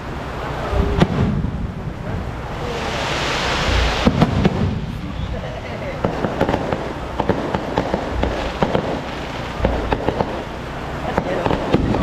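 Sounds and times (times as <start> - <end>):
fireworks rushing hiss: 0.0 - 12.0
low rumble: 0.0 - 12.0
fireworks cracks: 0.3 - 12.0.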